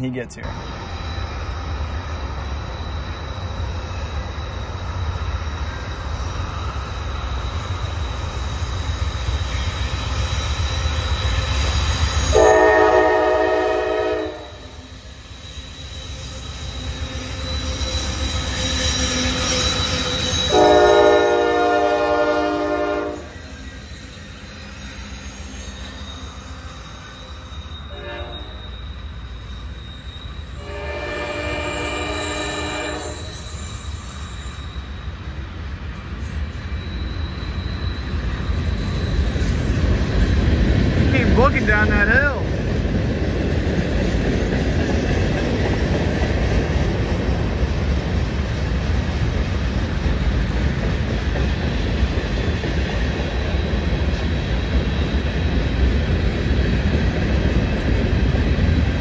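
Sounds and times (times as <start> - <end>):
diesel locomotive engine rumble: 0.0 - 59.0
train horn blasts: 12.3 - 14.8, 20.5 - 23.3, 27.9 - 28.6, 30.6 - 33.4.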